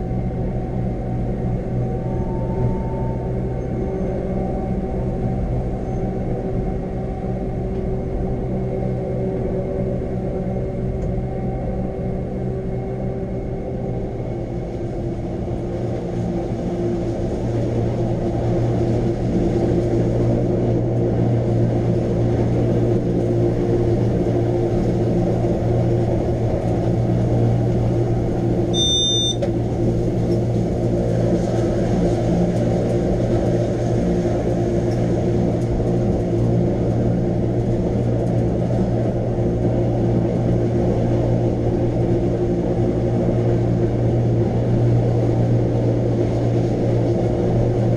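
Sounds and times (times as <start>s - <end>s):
electric train motor hum: 0.0s - 47.9s
short high beep: 28.8s - 29.5s.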